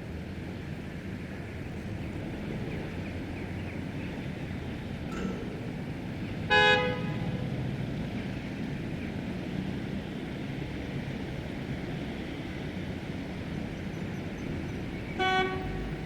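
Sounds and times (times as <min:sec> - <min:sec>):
car horn honk: 0:06.5 - 0:07.4, 0:15.2 - 0:15.9.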